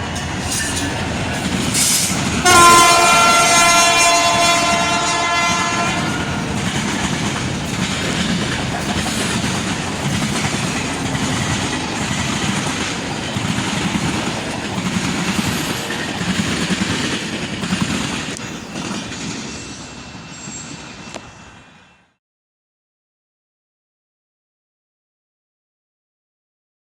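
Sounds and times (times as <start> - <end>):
train wheel clatter and rumble: 0.0 - 21.3
diesel locomotive horn: 2.4 - 6.5.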